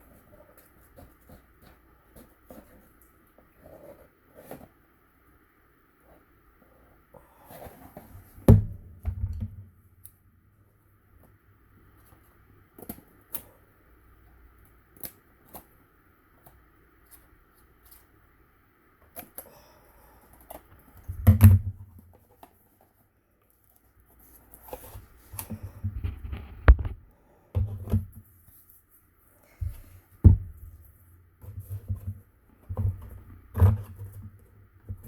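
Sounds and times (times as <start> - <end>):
cardboard bumps and rubbing: 7.6 - 9.7, 29.6 - 35.0.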